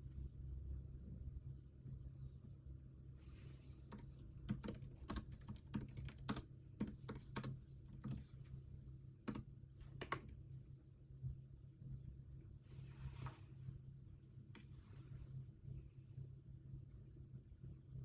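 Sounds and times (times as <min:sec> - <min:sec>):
typing on computer keyboard: 0:03.9 - 0:08.4, 0:09.2 - 0:10.4.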